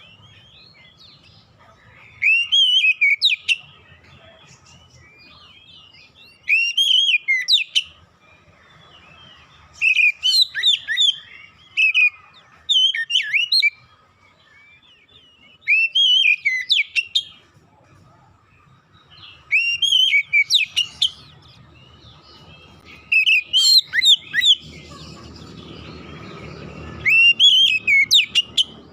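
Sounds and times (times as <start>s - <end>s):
bird singing whistled phrases: 2.1s - 3.8s, 4.7s - 8.0s, 9.7s - 13.8s, 14.5s - 17.4s, 19.1s - 25.5s, 26.9s - 28.8s.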